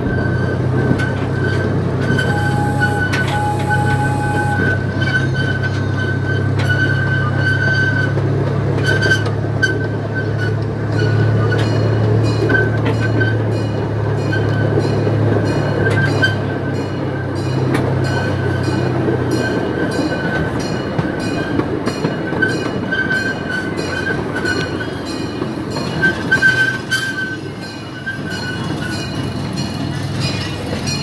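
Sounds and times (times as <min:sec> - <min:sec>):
high wheel squeal: 0:00.0 - 0:11.9, 0:25.8 - 0:29.1
ride train rumbling on track: 0:00.0 - 0:31.0.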